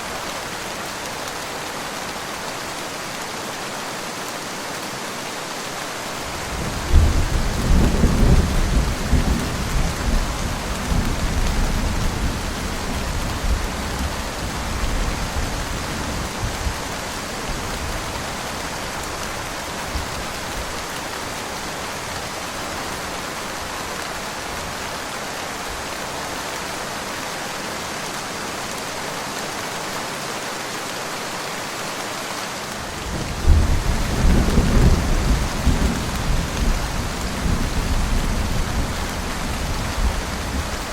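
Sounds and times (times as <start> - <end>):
heavy rain: 0.0 - 40.9
thunder rumbling: 33.1 - 40.9.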